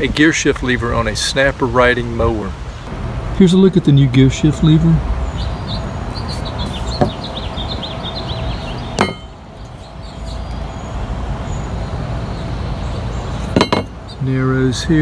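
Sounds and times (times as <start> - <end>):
small bird chirping: 5.2 - 14.3
sharp knocks: 7.0 - 7.3, 9.0 - 9.4, 13.5 - 14.0.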